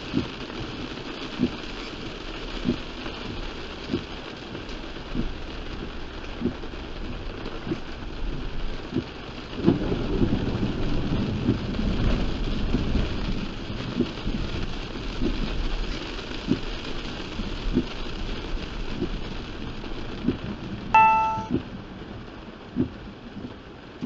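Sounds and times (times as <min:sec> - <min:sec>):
heavy rain on a car: 0:00.0 - 0:24.0
windshield wiper knocks: 0:01.4 - 0:01.6, 0:02.6 - 0:04.6
thunder rumbling: 0:09.6 - 0:14.6.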